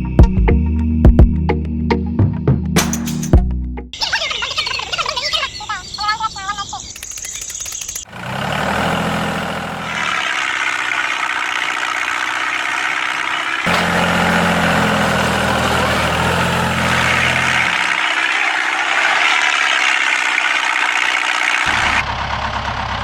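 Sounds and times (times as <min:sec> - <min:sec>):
heavy engine idling hum: 0:08.1 - 0:23.0.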